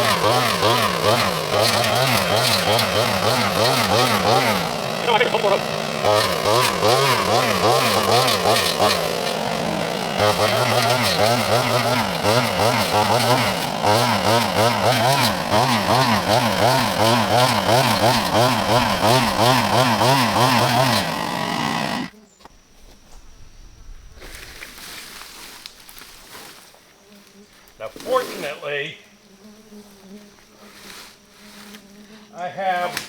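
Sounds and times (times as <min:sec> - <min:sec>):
electric chainsaw cutting: 0:00.0 - 0:22.2.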